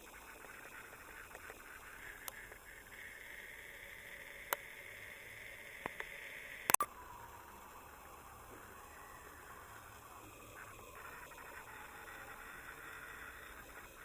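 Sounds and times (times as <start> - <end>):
faint steady hiss: 0.0 - 14.0
sharp clicks: 0.3 - 2.8.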